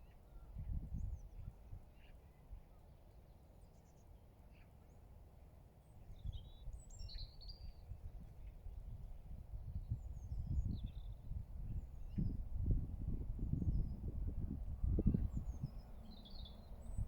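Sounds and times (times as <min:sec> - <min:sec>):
small birds chirping: 0:14.7 - 0:17.0.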